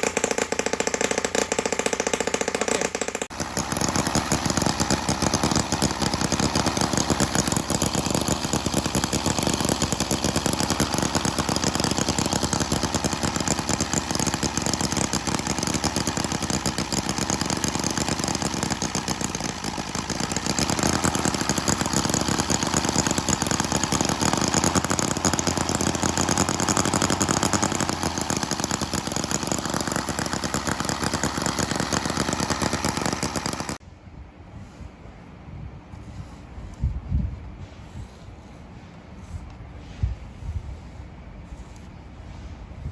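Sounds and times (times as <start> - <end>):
small model engine running: 0.0 - 33.8.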